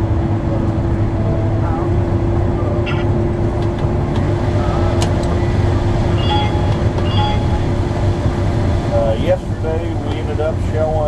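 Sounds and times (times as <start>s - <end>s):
combine harvester rumbling: 0.0s - 11.0s
faint short tones: 6.2s - 7.7s.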